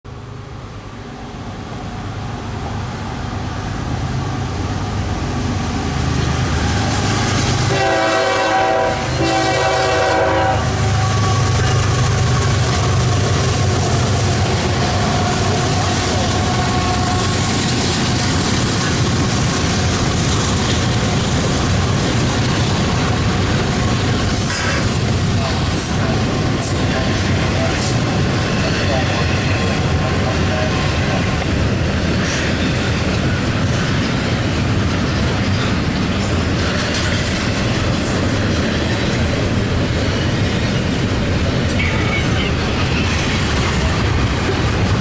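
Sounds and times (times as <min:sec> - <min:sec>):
freight train rumble: 0:00.0 - 0:45.0
train horn blasts: 0:07.6 - 0:13.3.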